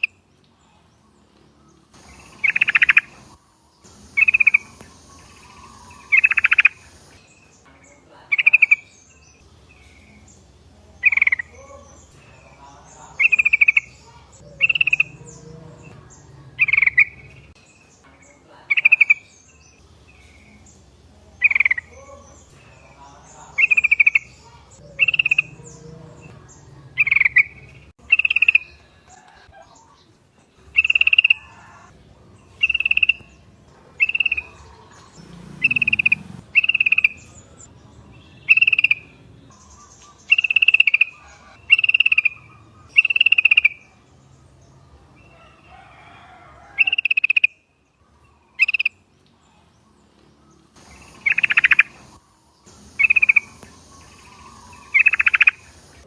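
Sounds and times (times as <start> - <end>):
bird chirping calls: 0.0 - 56.0.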